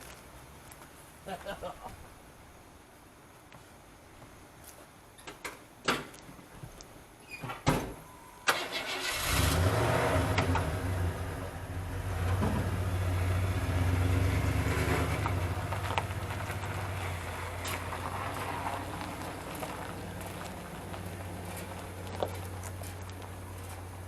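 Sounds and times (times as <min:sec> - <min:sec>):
car engine starting and running: 0:08.5 - 0:24.0.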